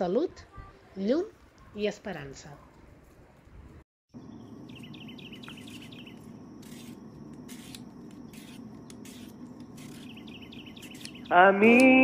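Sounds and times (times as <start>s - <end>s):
low outdoor background hum: 0.4s - 12.0s
small bird chirping: 4.2s - 11.6s.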